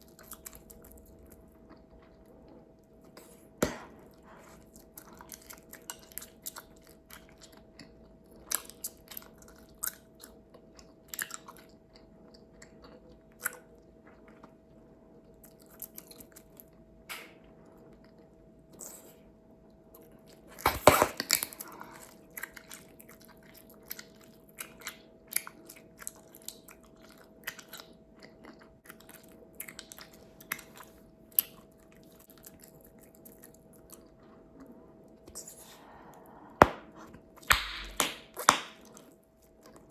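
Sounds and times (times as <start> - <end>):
bubblegum pops and snaps: 36.6 - 38.8.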